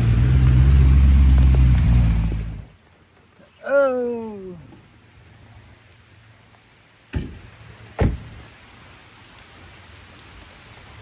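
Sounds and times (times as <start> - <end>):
low hum: 0.0 - 2.8
rain hissing: 0.0 - 11.0
car door shutting: 8.0 - 8.4.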